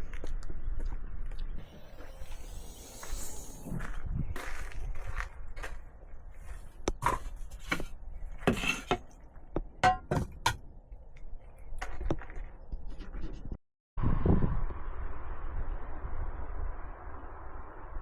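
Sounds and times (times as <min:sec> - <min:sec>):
objects knocking and clinking: 0:09.8 - 0:10.6.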